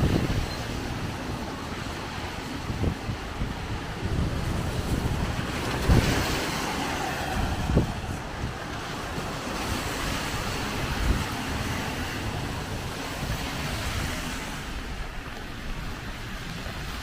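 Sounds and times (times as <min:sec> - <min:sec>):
heavy rain: 0:00.0 - 0:17.0
wind buffeting microphone: 0:00.0 - 0:17.0.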